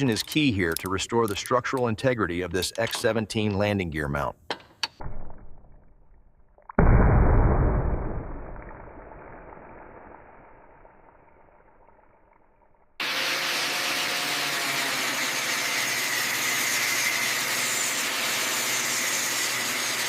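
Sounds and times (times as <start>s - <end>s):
low rumble: 6.8s - 11.7s.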